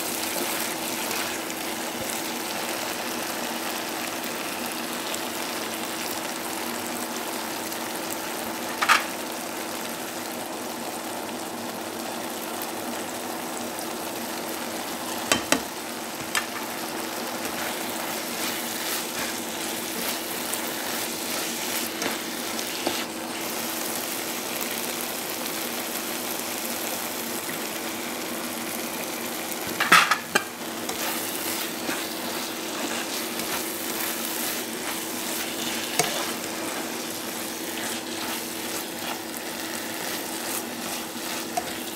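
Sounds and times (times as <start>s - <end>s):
food sizzling in a pan: 0.0s - 41.9s
spatula scraping and knocking pan: 29.6s - 41.9s.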